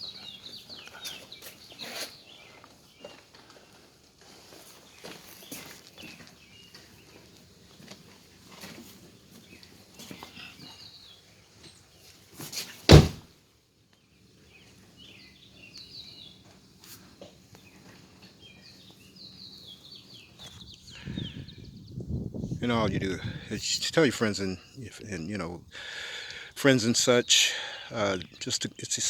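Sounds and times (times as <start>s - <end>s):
birds chirping: 0.0s - 12.3s, 13.9s - 29.0s
loud sharp thump: 12.9s - 13.2s.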